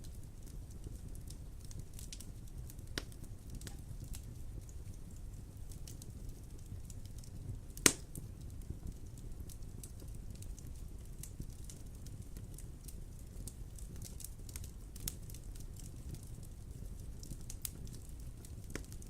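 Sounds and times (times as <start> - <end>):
fire crackling: 0.0 - 19.0
low rumble of fire: 0.0 - 19.0
loud sharp pop of fire: 7.8 - 8.2.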